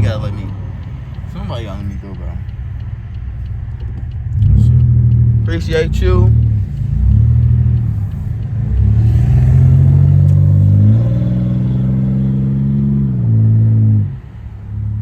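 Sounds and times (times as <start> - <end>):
car engine revving loudly: 4.2 - 15.0.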